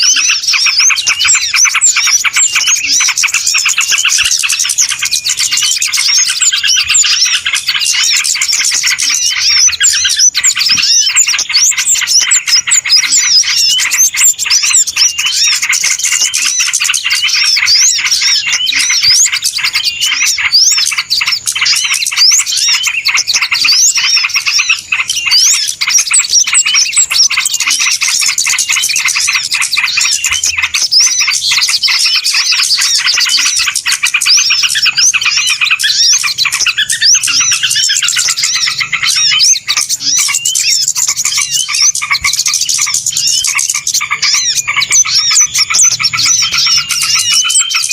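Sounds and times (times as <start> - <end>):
many small birds chirping: 0.0 - 47.9.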